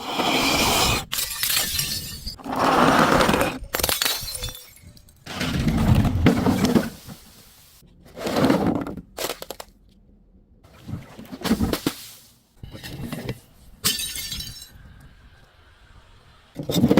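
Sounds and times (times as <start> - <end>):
glass bottles breaking: 1.1 - 2.4, 3.7 - 5.3, 13.8 - 14.8.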